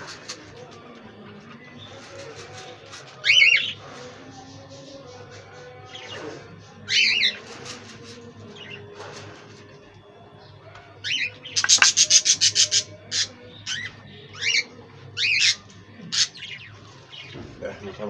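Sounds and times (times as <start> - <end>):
budgerigars chirping: 11.0 - 16.6.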